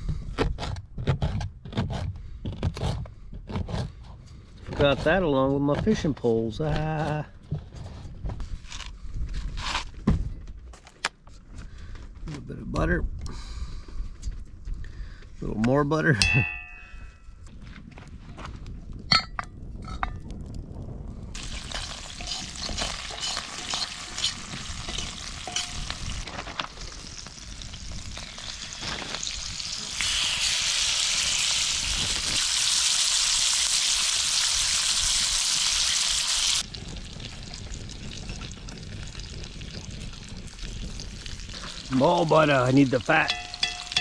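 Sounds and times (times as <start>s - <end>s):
clinks: 16.2s - 17.4s, 23.1s - 25.9s, 43.2s - 44.0s
butter sizzling in a skillet: 21.4s - 44.0s.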